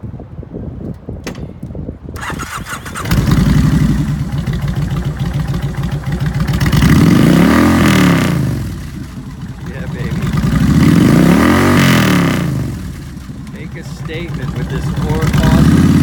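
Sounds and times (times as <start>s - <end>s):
motorcycle starter cranking: 2.2s - 8.0s, 12.8s - 16.0s
motorcycle engine idling and revving: 2.2s - 16.0s.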